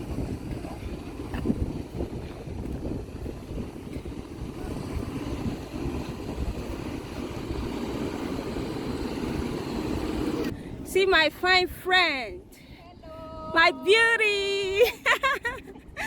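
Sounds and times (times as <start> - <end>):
vehicle rumbling in motion: 0.0 - 11.0.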